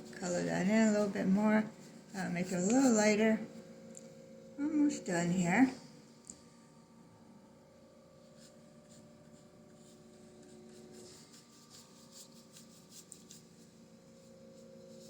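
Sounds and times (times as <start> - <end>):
paintbrush strokes on canvas: 0.0 - 4.3, 8.1 - 15.0
low steady hum: 0.0 - 15.0.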